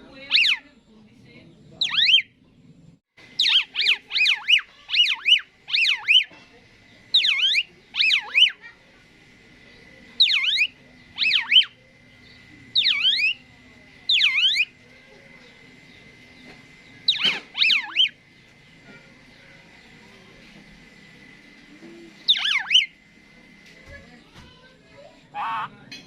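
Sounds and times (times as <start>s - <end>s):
starling whistling calls: 0.2s - 0.7s, 1.8s - 2.4s, 3.2s - 8.8s, 9.5s - 20.1s, 22.2s - 23.1s, 25.3s - 25.8s.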